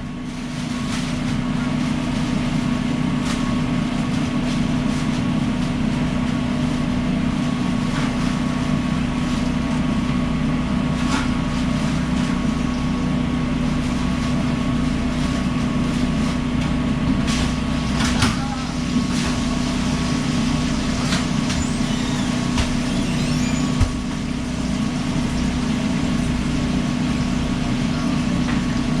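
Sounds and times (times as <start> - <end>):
machine drone: 17.7 - 29.0.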